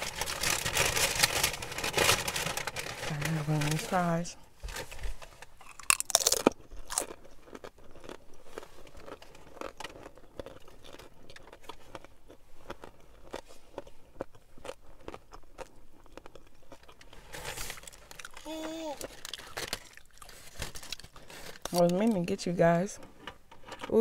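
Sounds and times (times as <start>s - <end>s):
person chewing food: 5.6s - 21.8s.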